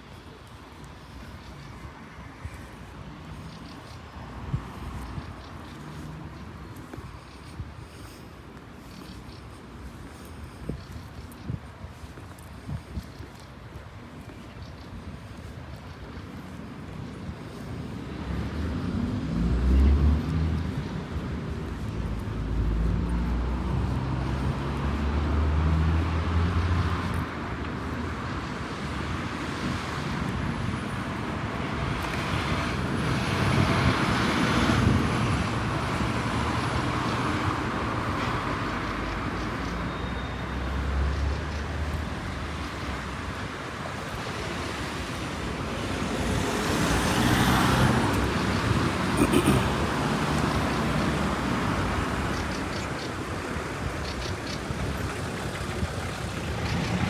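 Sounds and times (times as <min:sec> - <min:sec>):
vehicles passing: 0:00.0 - 0:57.0
low engine rumble: 0:50.8 - 0:57.0.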